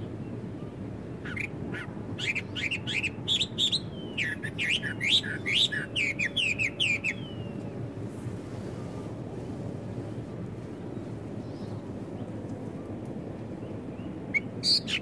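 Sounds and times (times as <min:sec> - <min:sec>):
low background rumble: 0:00.0 - 0:15.0
blackbird singing: 0:01.2 - 0:07.6, 0:13.6 - 0:15.0.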